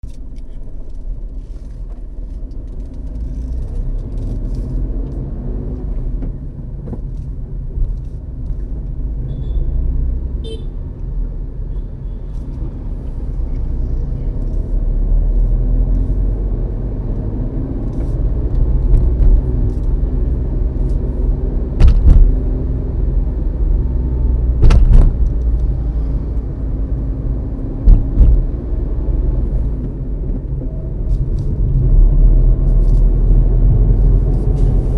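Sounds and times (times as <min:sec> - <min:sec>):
car engine and road noise: 0:00.0 - 0:34.9
sharp thumps: 0:21.8 - 0:22.5, 0:24.6 - 0:25.6, 0:27.8 - 0:28.6.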